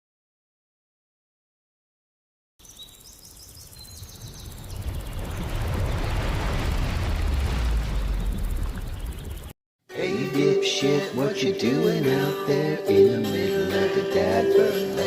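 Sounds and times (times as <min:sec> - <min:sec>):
wind buffeting microphone: 0:03.7 - 0:09.5.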